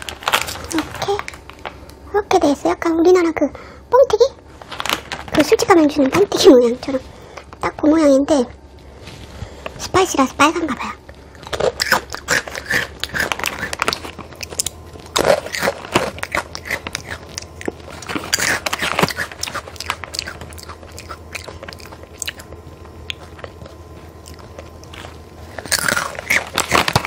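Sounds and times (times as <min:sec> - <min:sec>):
crunching crisp snack: 0:00.0 - 0:02.0, 0:11.2 - 0:27.0.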